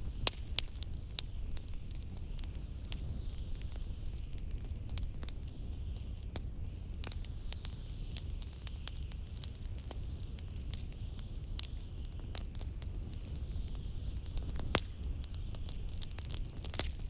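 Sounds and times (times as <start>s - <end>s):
low rumble of wind: 0.0s - 8.5s
wood fire crackling and popping: 0.0s - 17.0s.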